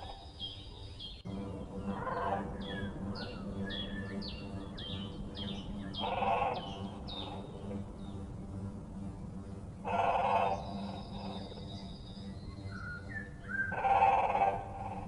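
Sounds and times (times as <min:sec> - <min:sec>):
small birds chirping: 0:00.0 - 0:15.0
steady low hum: 0:00.0 - 0:15.0
lower louder bird call: 0:01.8 - 0:08.2, 0:09.8 - 0:15.0.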